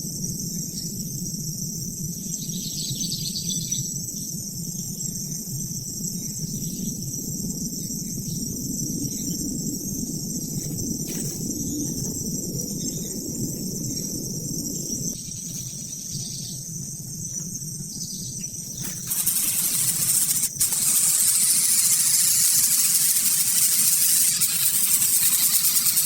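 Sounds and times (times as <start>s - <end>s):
insects chirring: 0.0s - 26.0s
loud even hiss: 18.7s - 26.0s.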